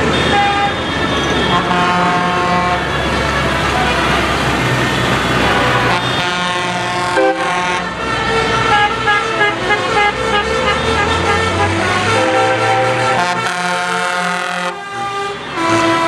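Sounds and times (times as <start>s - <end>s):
tractor engines passing: 0.0s - 16.0s
horn playing stepped tune: 5.6s - 16.0s.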